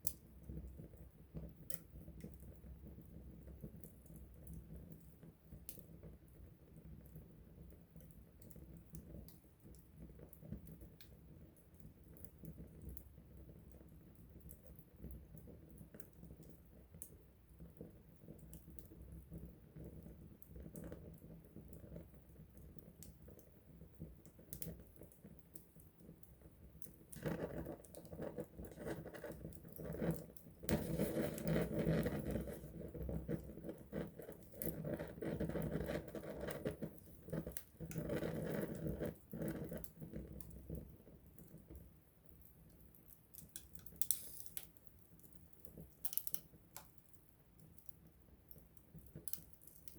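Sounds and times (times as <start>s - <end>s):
campfire crackling: 0.0s - 49.9s.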